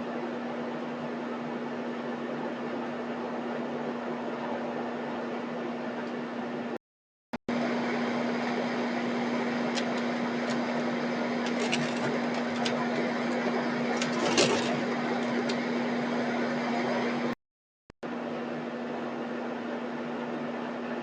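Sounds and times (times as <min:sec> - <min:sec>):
machine hum with hiss: 0:07.5 - 0:17.4.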